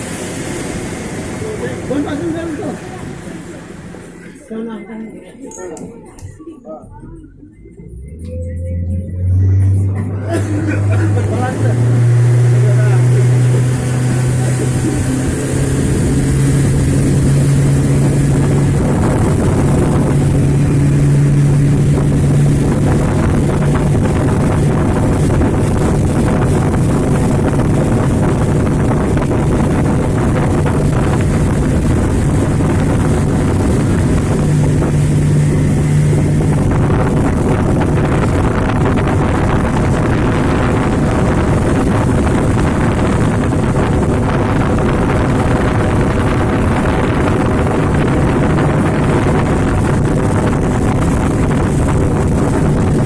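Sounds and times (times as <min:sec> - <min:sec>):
motorboat engine running: 0:00.0 - 0:53.0
wind buffeting microphone: 0:07.1 - 0:53.0.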